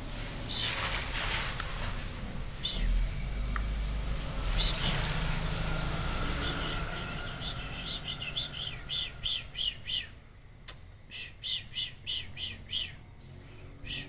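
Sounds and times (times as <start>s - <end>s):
small bird chirping: 4.4s - 13.1s, 13.7s - 14.0s.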